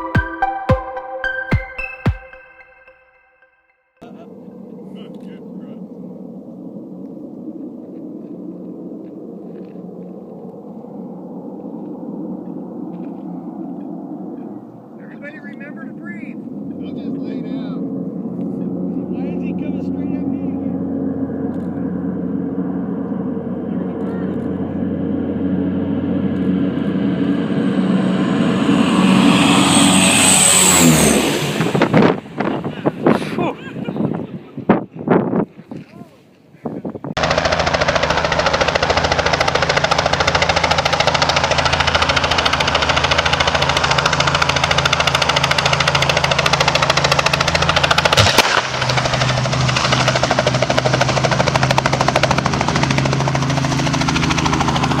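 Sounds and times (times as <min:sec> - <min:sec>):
propeller plane passing overhead: 0:04.0 - 0:35.7, 0:37.1 - 0:55.0
turboprop aircraft rumble: 0:04.0 - 0:35.7, 0:36.7 - 0:55.0.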